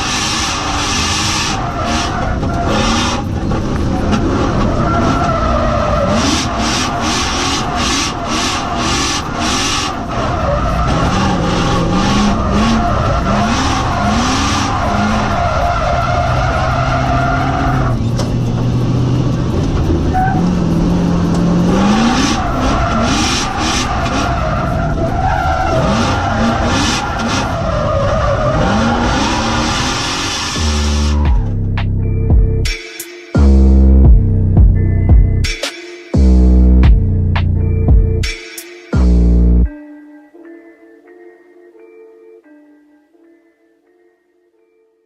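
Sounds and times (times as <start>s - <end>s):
tyres squealing: 0.0s - 18.7s, 21.6s - 31.5s
car engine revving: 0.0s - 32.8s, 33.4s - 35.6s, 36.2s - 38.4s, 39.0s - 39.7s.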